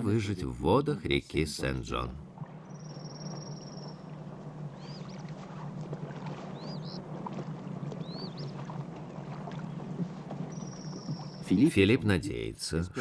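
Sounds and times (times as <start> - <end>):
soft wash of river noise: 2.3 - 11.6
bird chirping: 6.6 - 7.0.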